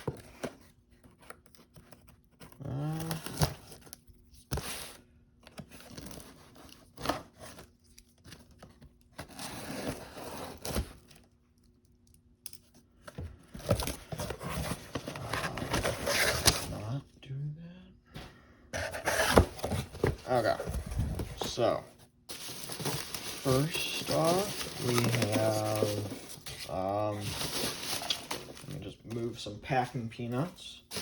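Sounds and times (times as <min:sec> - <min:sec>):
package ripping and crinkling: 0:22.3 - 0:28.8.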